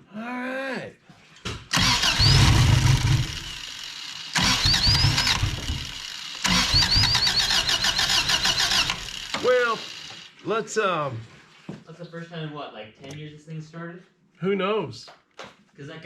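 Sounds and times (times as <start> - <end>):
car engine cranking and starting: 1.7 - 10.2.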